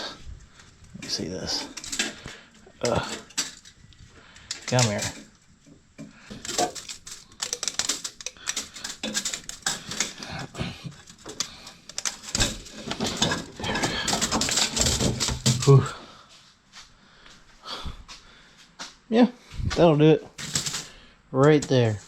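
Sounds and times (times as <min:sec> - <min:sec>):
metal clinking and knocking: 0:00.6 - 0:03.8, 0:04.4 - 0:15.7, 0:20.3 - 0:22.0.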